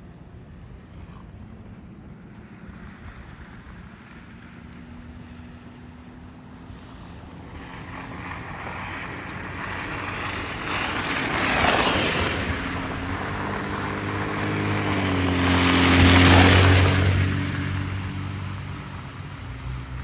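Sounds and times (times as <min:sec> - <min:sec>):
vehicle engine drone: 0:00.0 - 0:20.0
tyres hissing on wet street: 0:05.6 - 0:20.0.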